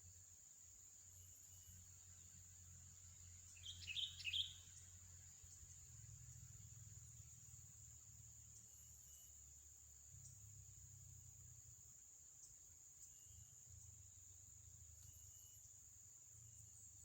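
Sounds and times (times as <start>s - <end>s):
bird chirping: 1.4s - 7.4s.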